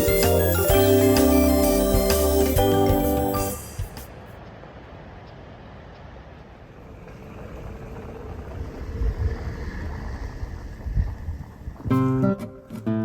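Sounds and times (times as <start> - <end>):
wind buffeting microphone: 7.0 - 12.2.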